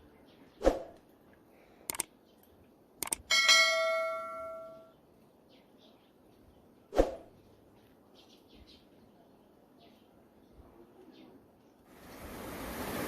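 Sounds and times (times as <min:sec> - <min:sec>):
sharp clicks: 0:01.9 - 0:02.1, 0:03.0 - 0:03.3
metal object ringing: 0:03.3 - 0:04.9.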